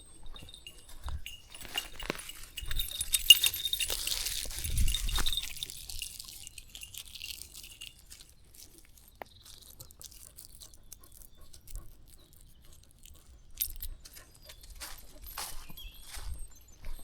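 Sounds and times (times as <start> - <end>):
footsteps on a path: 0.0 - 6.9, 7.6 - 11.9, 13.6 - 17.0
vegetation rustling: 0.9 - 9.8.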